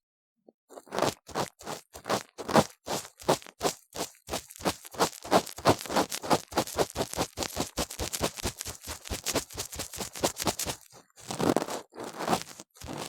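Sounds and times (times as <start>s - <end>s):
tool scraping inside ear model: 5.1s - 13.0s.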